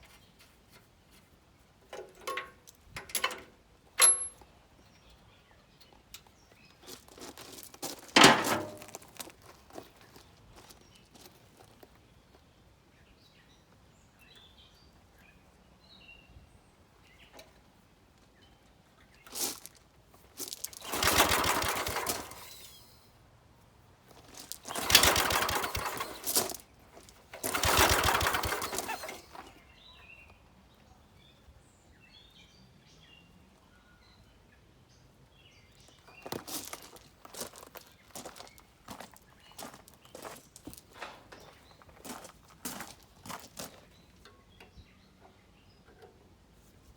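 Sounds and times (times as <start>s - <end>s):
small gas engine pull-started: 20.5s - 23.1s, 24.1s - 29.8s.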